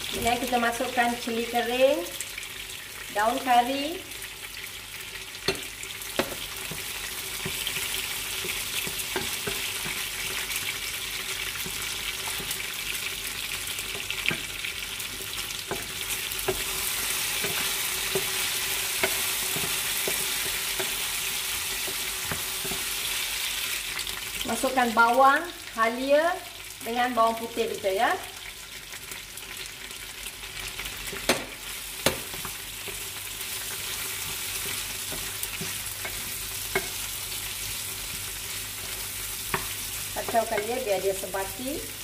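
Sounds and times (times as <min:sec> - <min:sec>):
chicken frying in hot oil: 0:00.0 - 0:42.0
wooden spatula knocking on pan: 0:05.5 - 0:07.7, 0:31.2 - 0:32.6.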